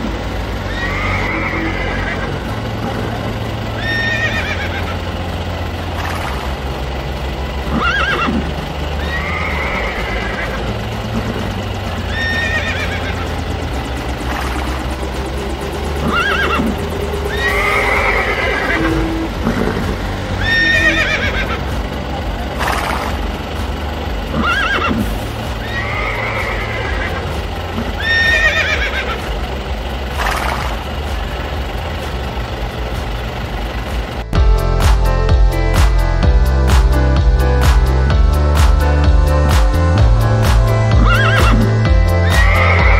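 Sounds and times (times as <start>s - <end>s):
low rumble: 0.0s - 42.9s
horses neighing: 0.6s - 6.4s, 7.7s - 15.1s, 15.9s - 22.0s, 22.6s - 29.4s, 40.9s - 42.9s.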